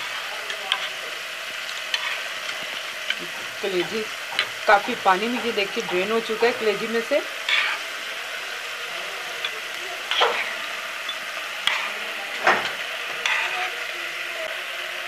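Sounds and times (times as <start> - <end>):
meat sizzling on griddle: 0.0 - 15.0
spatula scraping griddle: 1.9 - 7.9, 9.4 - 13.8.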